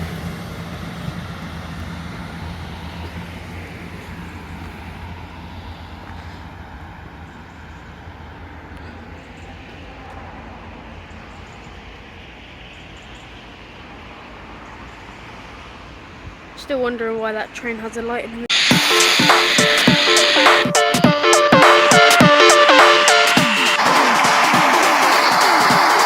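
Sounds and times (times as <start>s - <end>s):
train diesel engine droning: 0.0s - 26.0s.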